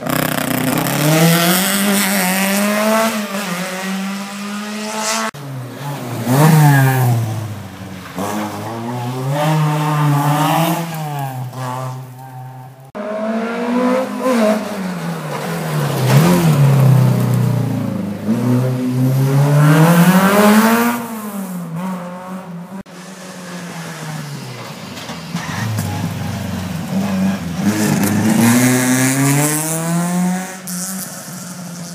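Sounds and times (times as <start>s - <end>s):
rally car engines at full throttle: 0.0s - 31.9s.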